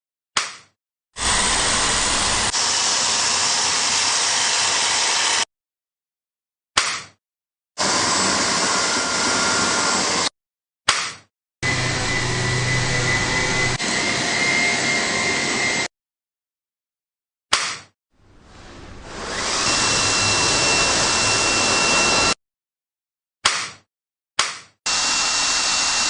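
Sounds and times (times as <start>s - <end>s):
vacuum cleaner motor whine: 1.2s - 5.4s, 7.8s - 10.3s, 11.6s - 15.9s, 18.7s - 22.4s, 24.9s - 26.0s.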